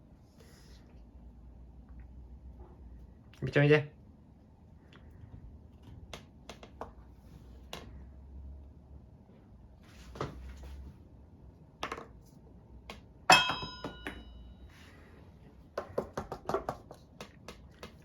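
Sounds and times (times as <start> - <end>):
glass clinking: 13.3 - 14.6.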